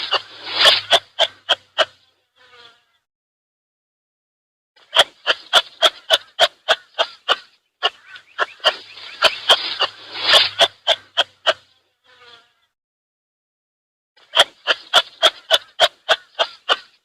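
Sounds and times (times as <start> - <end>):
animal giving short sharp calls: 0.0 - 2.0, 4.9 - 11.7.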